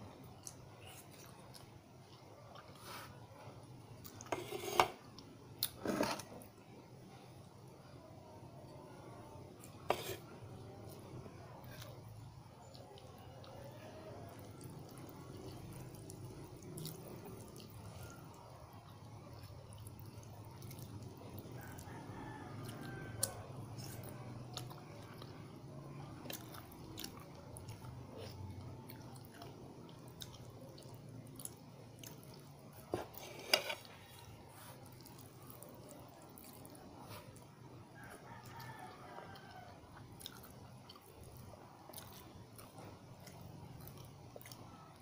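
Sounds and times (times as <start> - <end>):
low background hum: 0.0 - 45.0
person chewing: 26.2 - 37.5, 38.2 - 45.0.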